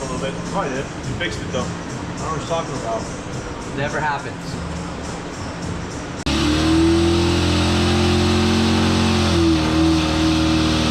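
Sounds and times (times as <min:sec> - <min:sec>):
car engine revving: 0:04.6 - 0:10.9.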